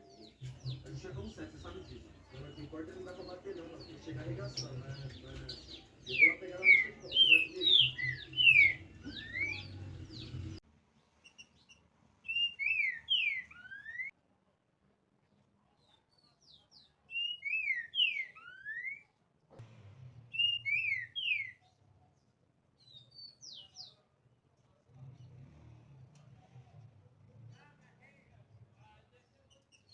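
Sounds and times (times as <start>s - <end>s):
bird whistling song: 5.4s - 10.5s, 11.5s - 14.1s, 17.1s - 19.2s, 20.3s - 21.6s.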